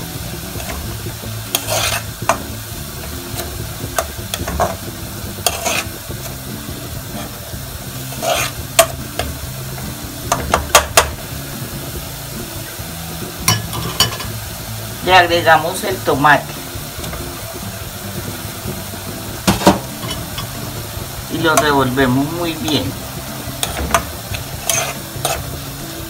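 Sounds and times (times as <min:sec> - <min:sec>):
onions sizzling in a pot: 0:00.0 - 0:26.0
metal ladle scraping pot: 0:01.5 - 0:02.4, 0:03.3 - 0:06.4, 0:07.0 - 0:07.4, 0:08.0 - 0:09.3, 0:13.4 - 0:14.4, 0:19.4 - 0:20.7, 0:22.6 - 0:25.6.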